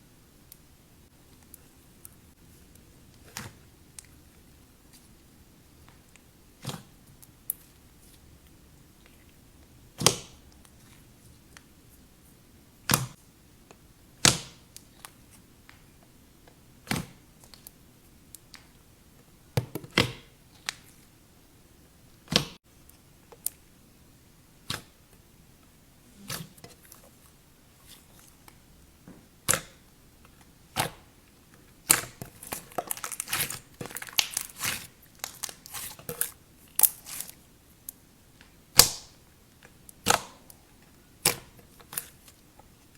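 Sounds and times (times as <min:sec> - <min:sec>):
clay slime popping and clicking: 0:38.7 - 0:39.1.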